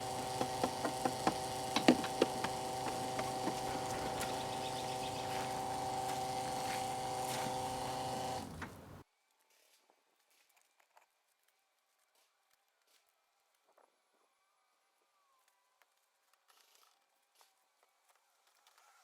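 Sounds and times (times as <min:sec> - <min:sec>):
electric pump whining: 0:00.0 - 0:09.0
nozzle and hose knocks and clicks: 0:00.0 - 0:09.0.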